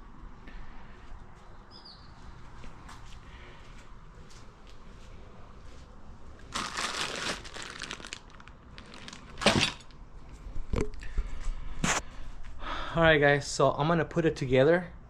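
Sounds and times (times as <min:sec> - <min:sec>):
packaging crinkling and rustling: 0:06.4 - 0:10.0.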